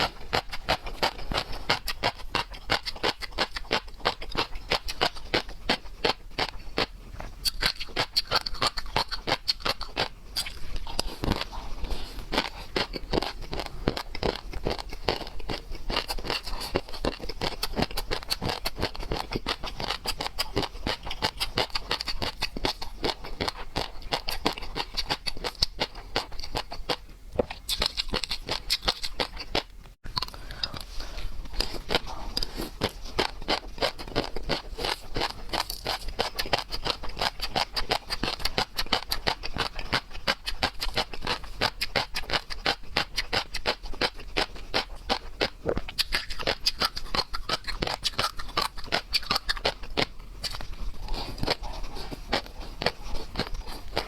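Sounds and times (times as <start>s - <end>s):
seafood being chewed and crunched: 0.0s - 54.0s.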